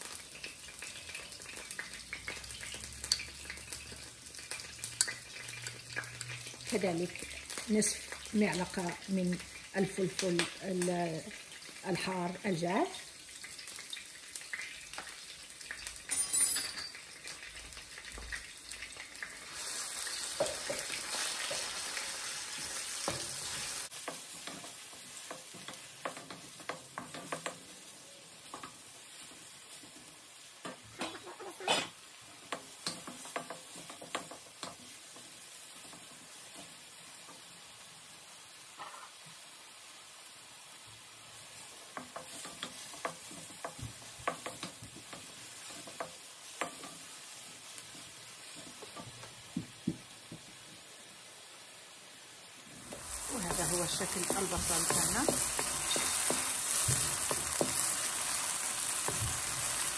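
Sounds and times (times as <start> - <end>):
onion sizzling in oil: 0.0 - 59.9
wooden spoon knocking on pan: 20.3 - 21.7, 41.9 - 46.9, 48.6 - 50.6, 53.4 - 58.0.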